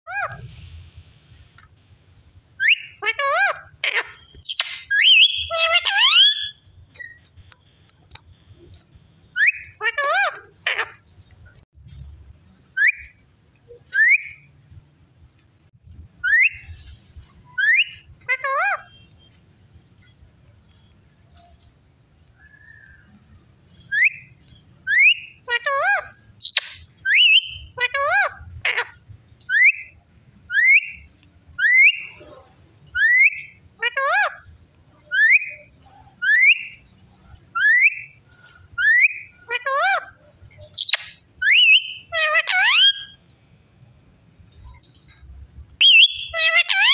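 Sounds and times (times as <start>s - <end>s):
parrot warbling calls: 2.6s - 6.6s, 9.4s - 11.0s, 17.5s - 19.0s, 24.9s - 31.0s, 33.0s - 34.5s, 38.8s - 43.2s, 45.8s - 46.9s
parrot whistling: 4.4s - 7.2s, 40.8s - 43.2s, 45.8s - 46.9s.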